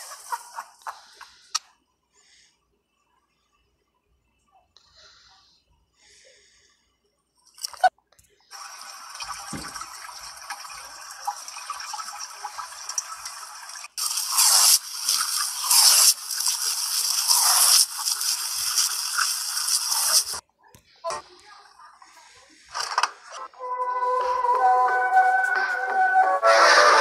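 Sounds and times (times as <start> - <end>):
hissing rush of water: 8.5 - 20.4
tap running water: 8.5 - 20.4.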